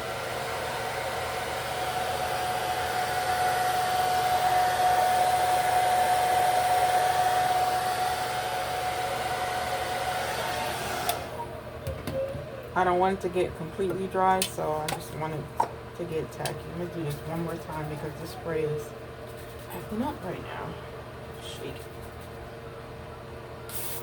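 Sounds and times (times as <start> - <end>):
hair dryer running: 0.0 - 11.5.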